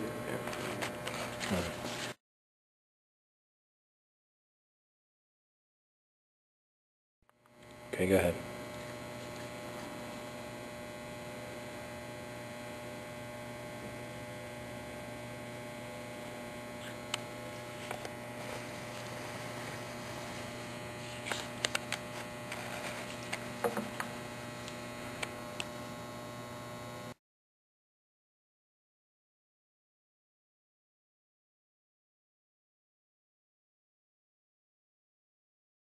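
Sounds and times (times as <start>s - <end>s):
electrical mains hum: 0.0s - 2.2s, 7.3s - 27.2s.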